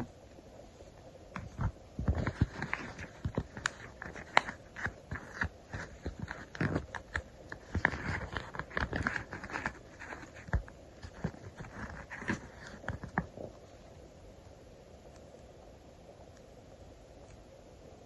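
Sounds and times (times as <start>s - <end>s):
paper rustling: 1.4s - 13.5s.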